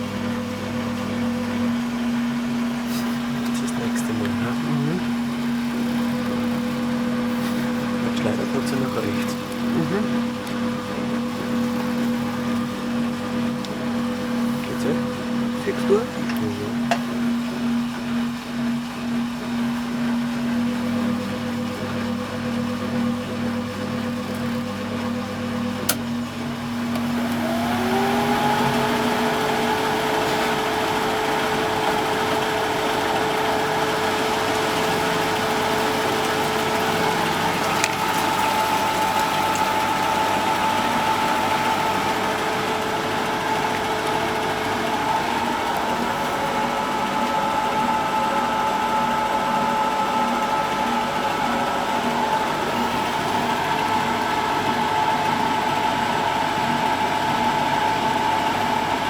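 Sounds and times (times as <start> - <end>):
washing machine drum spinning: 0.0 - 59.0
washing machine click: 25.6 - 30.5.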